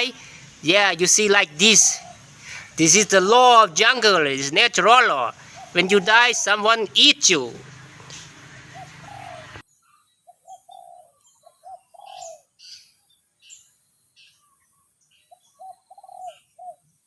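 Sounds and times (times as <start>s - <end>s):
small birds chirping: 0.0s - 17.0s
dove cooing: 1.4s - 2.8s, 4.8s - 6.8s, 7.6s - 9.6s, 10.3s - 12.5s, 15.3s - 16.9s.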